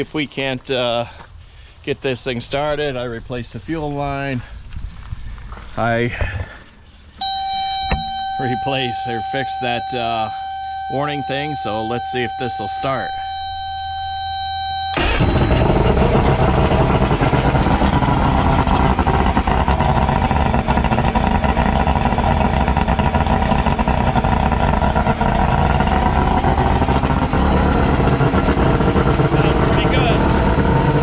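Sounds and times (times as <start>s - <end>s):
warning buzzer tone: 7.2s - 16.1s
outboard motor starting and running: 7.2s - 31.0s.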